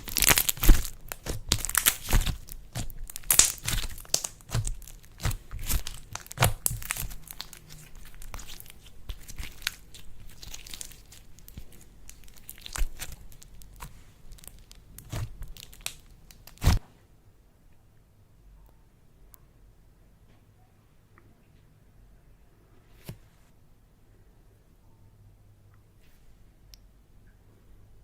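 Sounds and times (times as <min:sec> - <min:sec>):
slime squeezed crackling and popping: 0:00.0 - 0:16.8.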